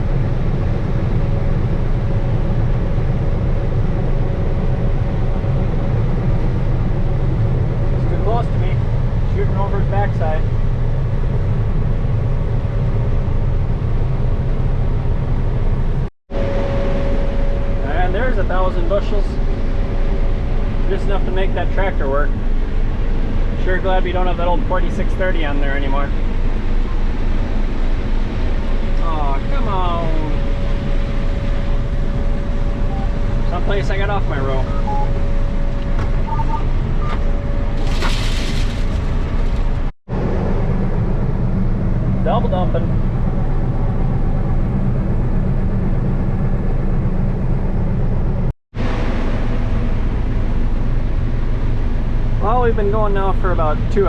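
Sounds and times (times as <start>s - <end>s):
faint steady whine: 0.0s - 39.2s
combine harvester engine rumble: 0.0s - 54.0s
steady hum: 0.0s - 54.0s.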